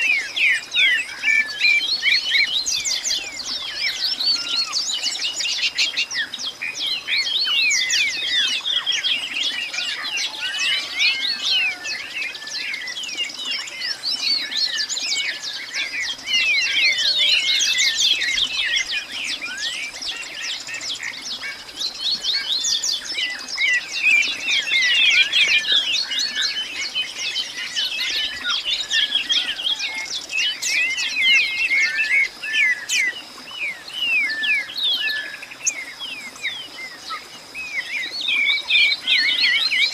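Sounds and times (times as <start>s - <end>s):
many birds chirping: 0.0s - 39.9s.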